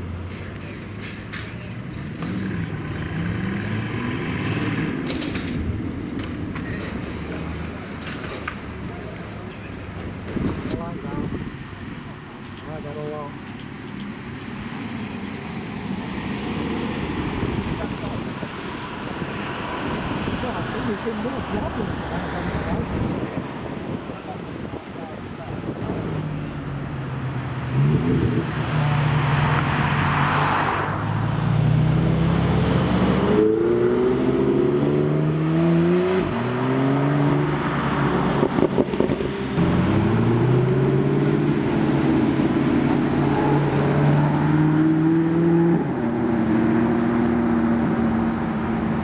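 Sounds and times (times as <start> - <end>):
car engine revving under load: 25.7 - 49.0.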